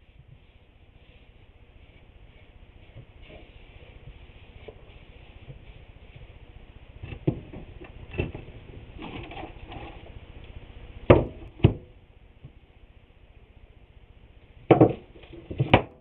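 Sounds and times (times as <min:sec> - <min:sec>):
sharp wood knocks: 0:11.1 - 0:11.9
wooden boards knocking: 0:14.7 - 0:16.0.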